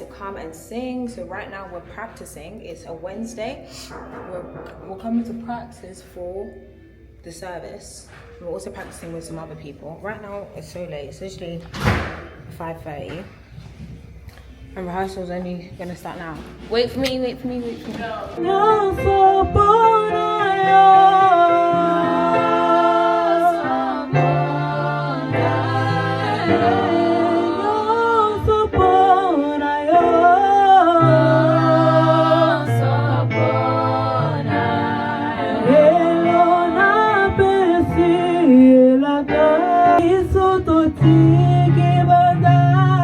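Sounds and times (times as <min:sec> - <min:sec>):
group singing in harmony: 0:18.4 - 0:43.0.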